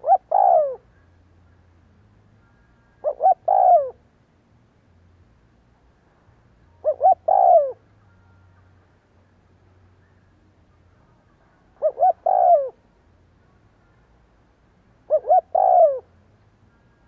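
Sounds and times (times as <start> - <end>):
dove cooing: 0.0 - 0.9, 3.0 - 4.0, 6.8 - 7.8, 11.8 - 12.8, 15.1 - 16.1.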